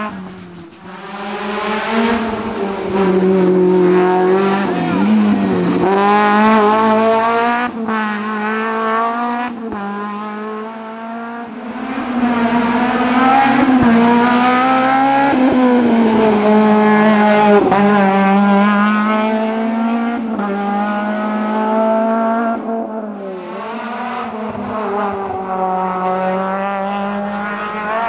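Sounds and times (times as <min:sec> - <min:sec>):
rally car engine revving: 0:00.0 - 0:28.0.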